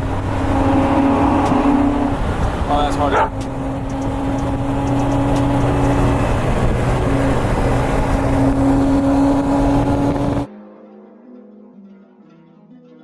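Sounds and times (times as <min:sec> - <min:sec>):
car engine drone: 0:00.0 - 0:10.5
road noise: 0:00.0 - 0:10.5
quiet music: 0:10.5 - 0:13.0.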